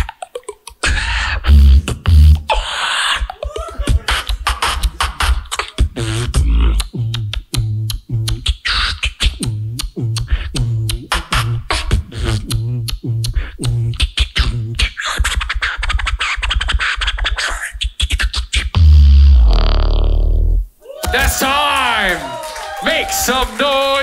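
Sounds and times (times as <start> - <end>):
hissing scratch-like vocal effects: 0.0 - 18.8
beatboxing kicks and clicks: 0.0 - 21.5
loud deep vocal bass note: 5.8 - 8.4, 9.4 - 14.8, 18.8 - 20.6.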